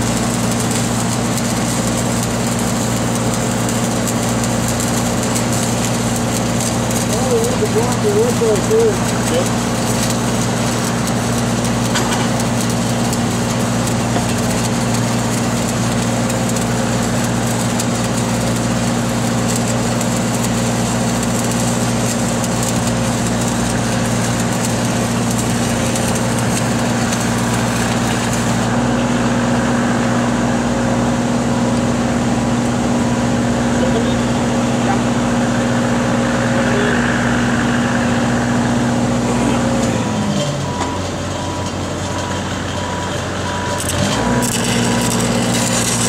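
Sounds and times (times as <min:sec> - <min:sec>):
welding arc crackling: 0:00.0 - 0:46.0
welding machine engine droning: 0:00.0 - 0:46.0.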